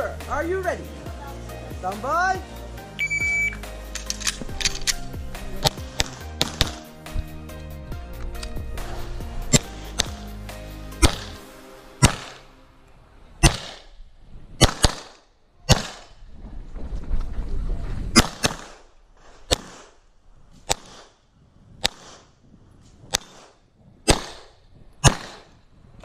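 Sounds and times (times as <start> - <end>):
low rumble: 3.4 - 14.6
pistol shots: 5.6 - 6.9, 9.5 - 10.2, 11.0 - 11.4, 12.0 - 12.5, 13.4 - 14.0, 14.6 - 16.2, 18.2 - 18.9, 19.5 - 20.0, 20.7 - 21.2, 21.8 - 22.3, 23.1 - 25.6.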